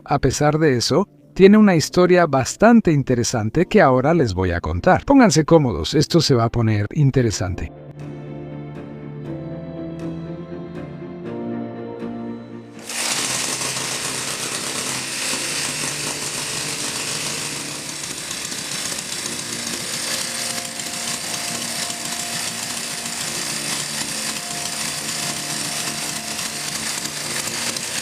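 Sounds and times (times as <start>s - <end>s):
motor running with rattling buzz: 12.8s - 28.0s.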